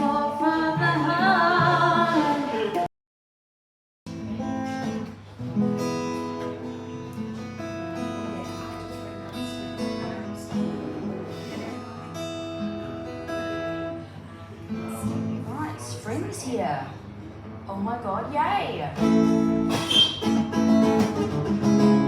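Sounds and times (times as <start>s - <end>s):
acoustic guitar strumming: 0.0s - 2.8s, 4.1s - 15.5s, 19.0s - 22.0s.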